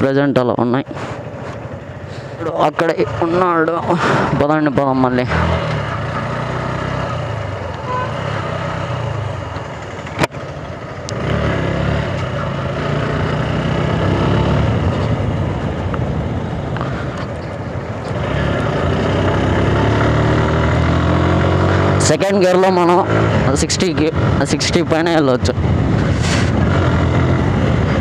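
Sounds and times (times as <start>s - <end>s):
motorcycle engine running: 0.0s - 28.0s
wind noise: 23.2s - 28.0s.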